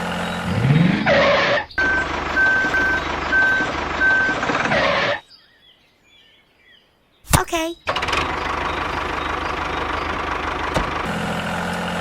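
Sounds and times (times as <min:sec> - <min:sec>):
vehicle engine running: 0:00.0 - 0:05.2, 0:07.9 - 0:12.0
reversing alarm beeps: 0:01.8 - 0:04.9.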